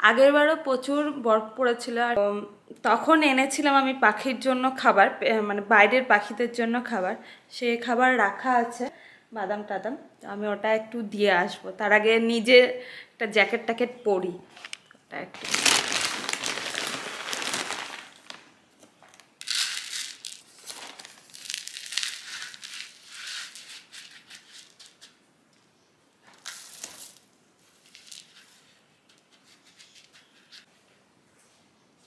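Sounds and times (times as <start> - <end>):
jacket fabric rustling: 15.4 - 18.5.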